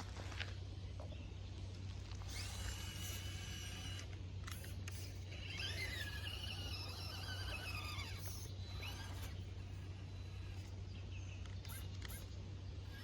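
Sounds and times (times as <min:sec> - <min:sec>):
rc car motor and gears whining: 0:01.9 - 0:13.0.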